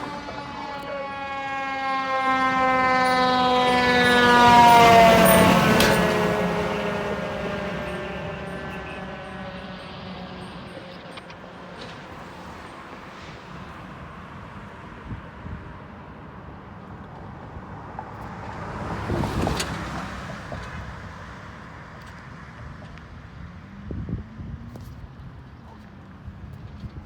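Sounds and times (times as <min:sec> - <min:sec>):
vehicle driving past: 0:00.0 - 0:15.1
steady traffic noise: 0:00.0 - 0:27.0.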